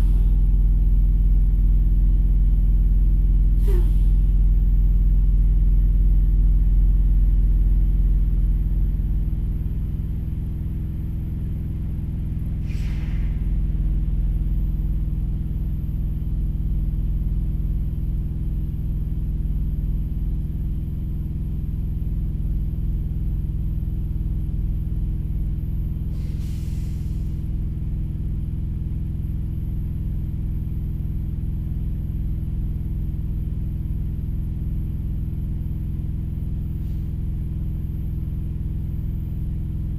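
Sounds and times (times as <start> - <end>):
engine idling: 0.0 - 39.9
short hisses: 3.6 - 4.2, 12.6 - 13.5, 26.2 - 27.3.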